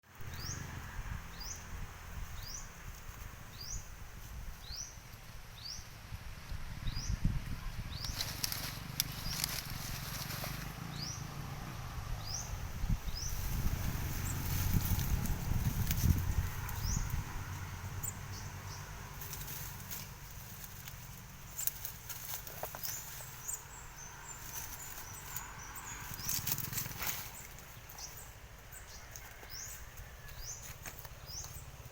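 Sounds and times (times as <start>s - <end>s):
low rumbling background noise: 0.1s - 31.9s.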